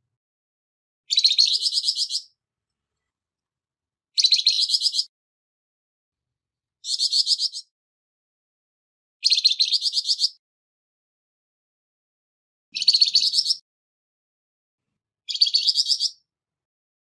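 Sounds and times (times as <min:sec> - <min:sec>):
bird harsh chattering call: 0:01.1 - 0:02.3, 0:06.8 - 0:07.7.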